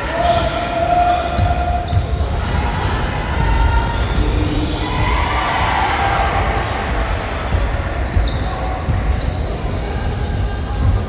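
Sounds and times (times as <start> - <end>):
voices in a hall: 0.0 - 11.0
basketball bouncing on gym floor: 0.2 - 11.0.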